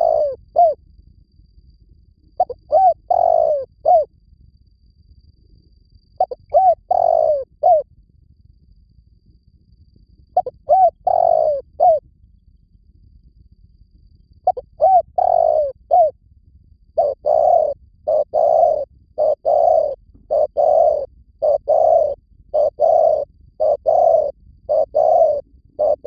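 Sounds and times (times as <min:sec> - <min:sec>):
dove cooing: 0:00.0 - 0:00.8, 0:02.4 - 0:04.1, 0:06.2 - 0:07.8, 0:10.4 - 0:12.0, 0:14.5 - 0:16.2, 0:17.0 - 0:26.0.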